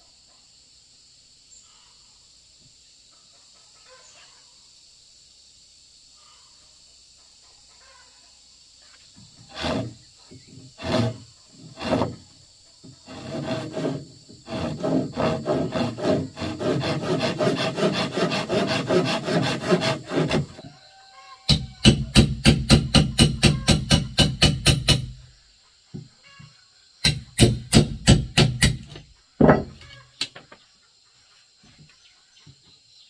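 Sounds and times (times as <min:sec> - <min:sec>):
hand saw cutting: 0:09.4 - 0:10.0, 0:10.6 - 0:12.2, 0:13.0 - 0:20.6, 0:27.0 - 0:29.0.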